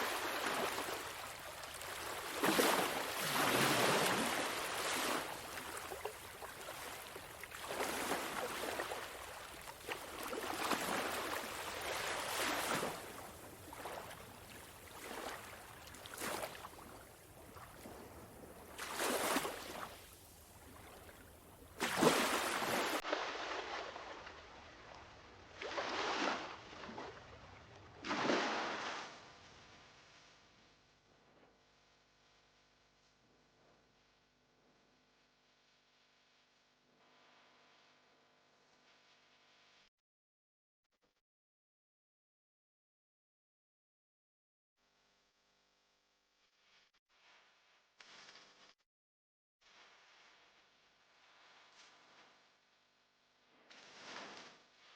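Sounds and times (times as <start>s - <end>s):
sea waves breaking on beach: 0.0s - 24.4s, 25.6s - 27.2s, 28.0s - 29.2s.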